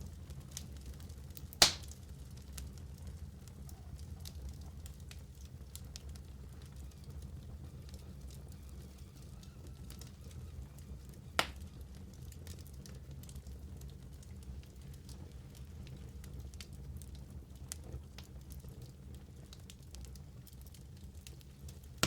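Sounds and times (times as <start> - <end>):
fire low rumble: 0.0 - 22.0
wood fire crackling: 0.0 - 22.0
sharp pop: 1.6 - 1.9.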